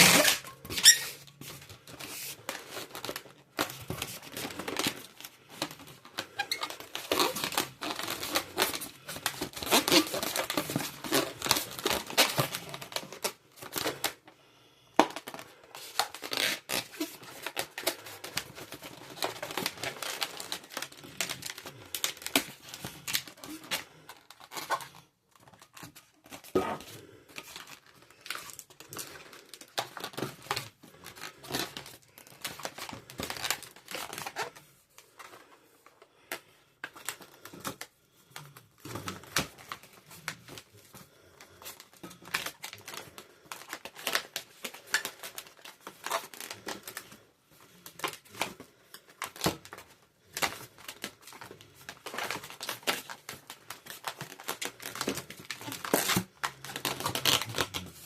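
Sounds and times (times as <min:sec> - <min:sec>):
rubber balloons rubbing: 0:00.0 - 0:02.7, 0:03.8 - 0:13.1.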